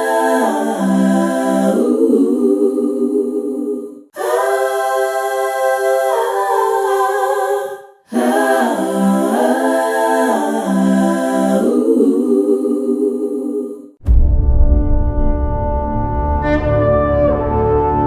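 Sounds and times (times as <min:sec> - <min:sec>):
a cappella voices singing: 0:00.0 - 0:14.0.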